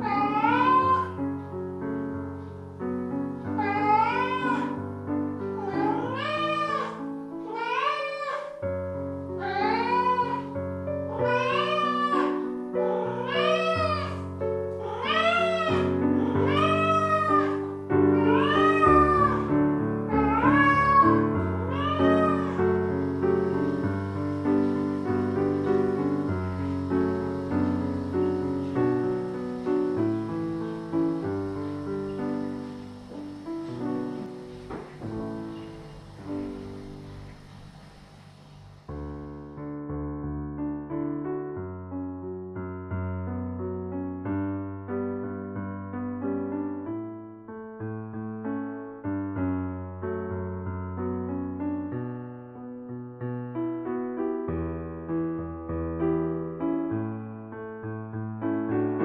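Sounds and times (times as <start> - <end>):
cat meowing: 0.0 - 1.2, 3.6 - 4.8, 5.6 - 8.6, 9.4 - 19.5, 20.1 - 22.8
piano music: 0.0 - 59.0.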